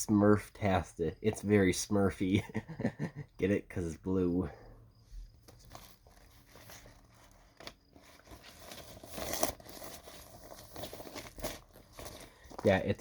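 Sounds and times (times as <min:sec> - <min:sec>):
record sleeves rustling: 0:05.2 - 0:13.0.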